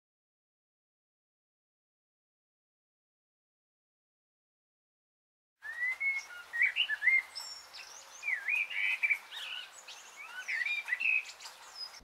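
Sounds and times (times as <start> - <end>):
birds chirping and whistling: 5.6 - 12.0.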